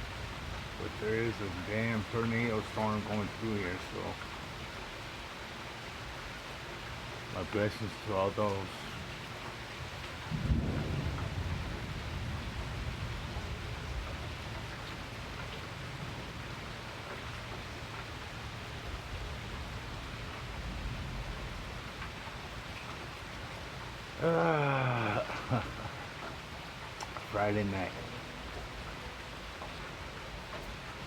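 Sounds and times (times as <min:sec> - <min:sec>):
steady rain falling: 0:00.0 - 0:31.0
thunder rumble: 0:10.3 - 0:14.2.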